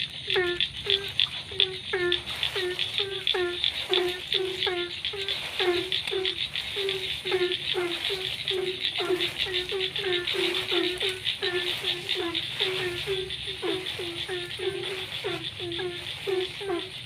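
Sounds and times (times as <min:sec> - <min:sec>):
frogs croaking: 0:00.0 - 0:17.0.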